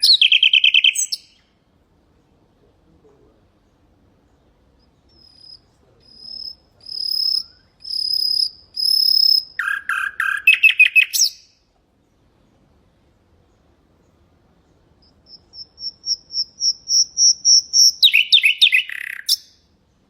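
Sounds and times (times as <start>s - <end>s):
nightingale singing: 0.0s - 1.6s, 3.5s - 12.2s, 13.4s - 19.7s.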